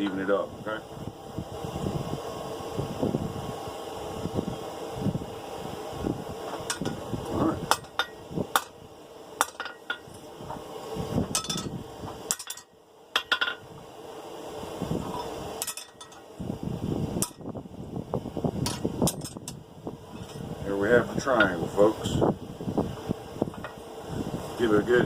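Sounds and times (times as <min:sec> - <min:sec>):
low steady rumble: 0:00.0 - 0:25.0
hammer striking steel on anvil: 0:07.7 - 0:08.7, 0:09.4 - 0:10.1, 0:11.3 - 0:11.7, 0:12.3 - 0:13.6.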